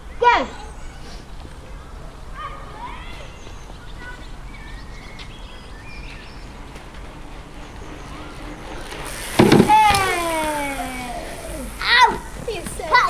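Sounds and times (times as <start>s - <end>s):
birds singing: 0.0s - 9.6s.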